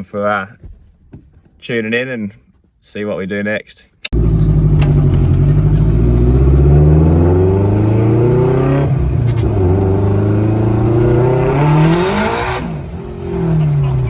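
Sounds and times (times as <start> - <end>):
car engine accelerating: 4.1 - 14.0.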